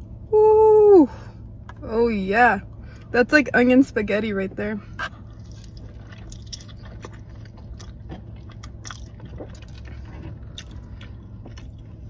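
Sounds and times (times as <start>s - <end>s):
steady low hum: 0.0s - 12.0s
person chewing crunchy food: 4.9s - 12.0s.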